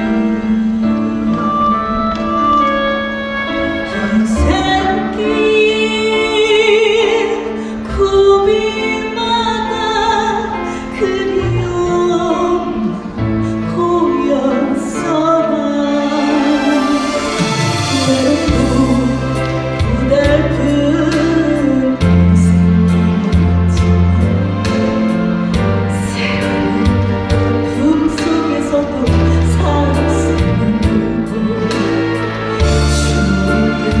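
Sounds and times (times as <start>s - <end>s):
karaoke backing track: 0.0s - 34.0s
woman singing with vibrato: 0.0s - 34.0s.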